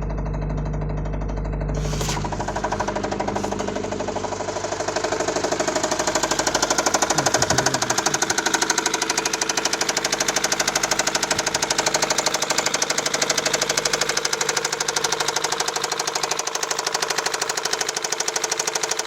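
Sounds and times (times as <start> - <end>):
engine running with rapid knocking: 0.0 - 19.0.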